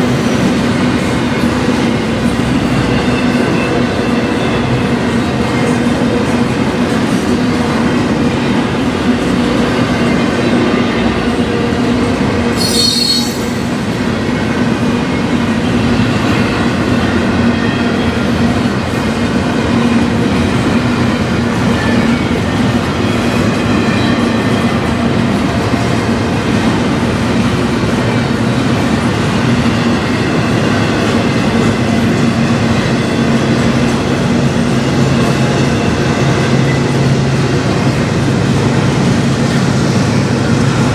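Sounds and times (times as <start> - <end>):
freight train rolling past: 0.0 - 40.9
wheels squealing on rails: 0.0 - 40.9
sharp high-pitched squeal: 12.5 - 13.8.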